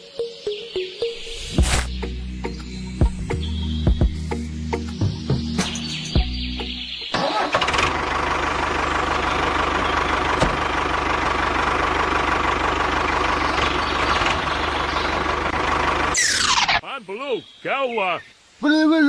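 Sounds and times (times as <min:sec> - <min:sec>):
engine starting and running: 0:07.1 - 0:16.8.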